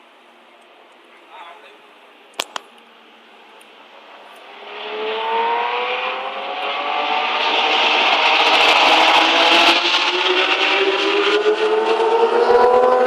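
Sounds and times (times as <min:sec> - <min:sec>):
sharp clicks: 0:02.3 - 0:02.9
racing car engine accelerating: 0:04.4 - 0:13.0.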